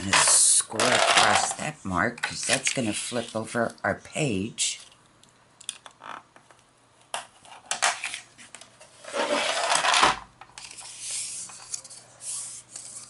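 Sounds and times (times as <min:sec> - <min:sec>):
scoring tool scraping paper: 0:09.0 - 0:09.8, 0:10.6 - 0:13.0.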